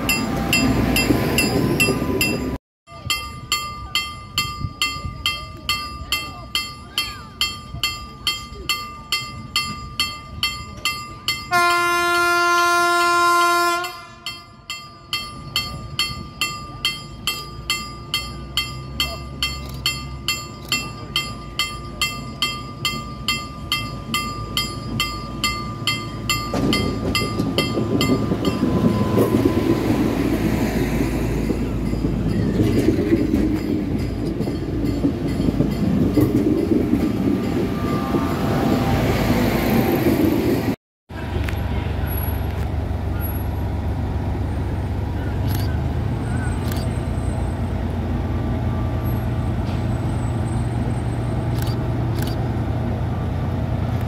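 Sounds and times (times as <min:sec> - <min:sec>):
train rumbling past: 0:00.0 - 0:54.0
train horn: 0:11.5 - 0:14.3, 0:37.6 - 0:39.4
ringing warning bell: 0:13.8 - 0:30.0.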